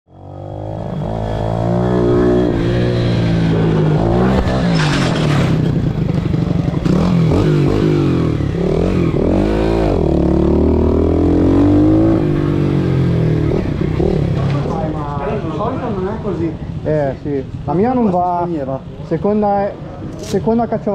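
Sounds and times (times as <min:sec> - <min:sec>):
pit bike engine revving: 0:00.1 - 0:15.3.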